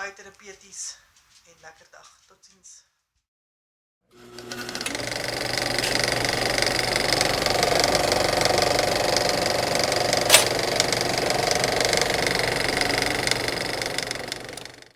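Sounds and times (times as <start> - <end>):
small motor running: 4.1 - 14.9
sharp click: 10.3 - 10.7.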